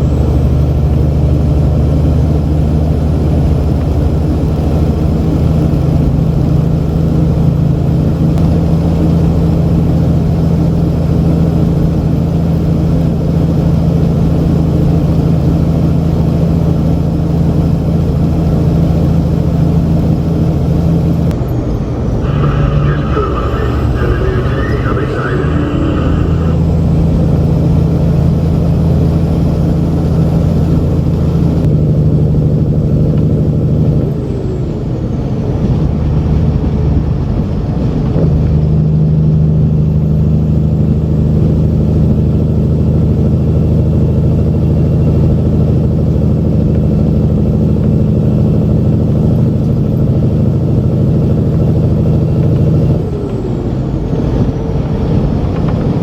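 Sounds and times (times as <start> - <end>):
diesel truck engine running: 0.0 - 56.0.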